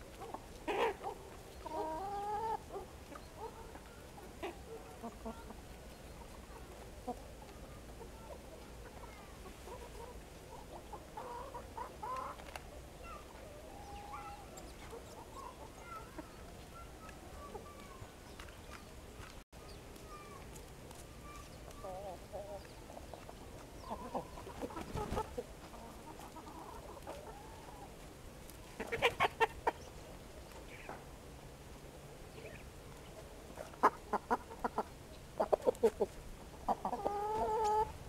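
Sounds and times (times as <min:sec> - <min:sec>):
birds calling: 0:00.0 - 0:08.3, 0:13.0 - 0:20.4, 0:21.2 - 0:27.9.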